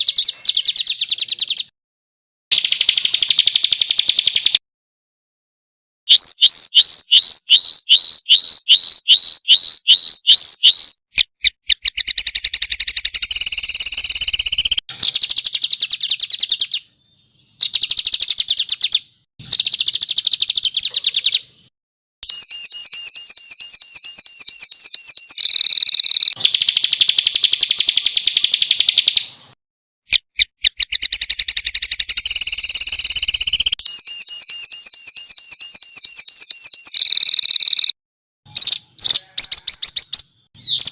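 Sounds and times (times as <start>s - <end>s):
songbirds trilling: 0.0s - 1.7s, 6.1s - 11.0s, 38.5s - 40.9s.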